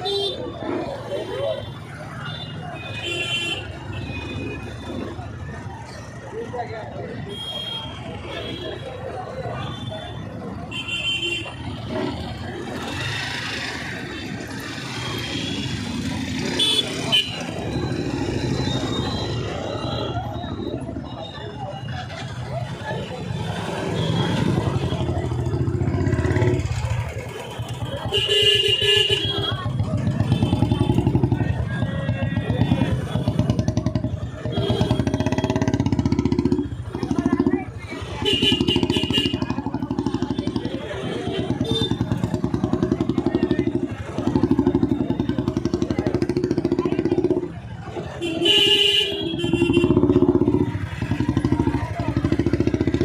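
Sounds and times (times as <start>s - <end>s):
vehicle engine running: 21.6s - 53.0s.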